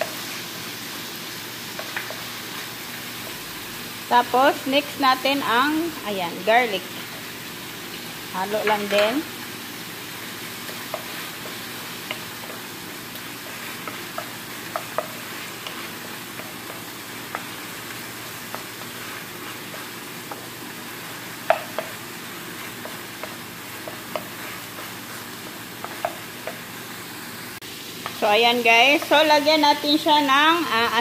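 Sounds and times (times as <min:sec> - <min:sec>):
vegetables sizzling in frying pan: 0:00.0 - 0:31.0
spatula tapping pan: 0:01.7 - 0:02.3, 0:10.5 - 0:26.7, 0:28.9 - 0:29.3.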